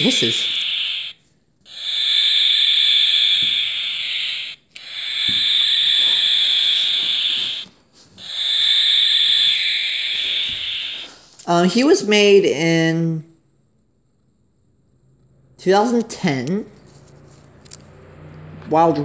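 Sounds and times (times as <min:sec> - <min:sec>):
toy barn owl screech: 0:00.0 - 0:12.0.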